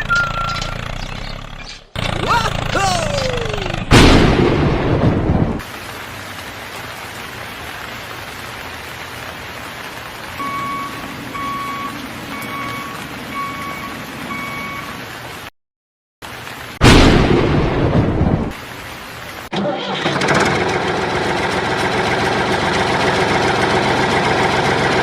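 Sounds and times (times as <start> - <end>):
vehicle reversing alarm beeps: 0.0 - 1.0, 10.4 - 15.0
thunder rumble: 3.9 - 5.7, 16.8 - 18.6
steady rain hiss: 5.6 - 15.5, 16.2 - 19.5.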